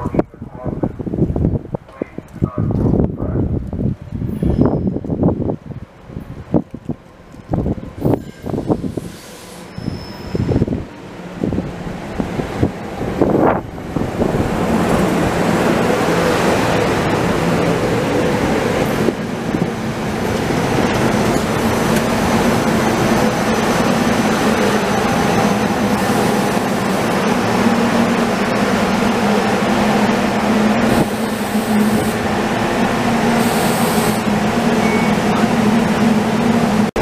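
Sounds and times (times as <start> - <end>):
train cars rolling with low hum: 0.0 - 37.0
wheels clicking on rails: 12.1 - 36.9.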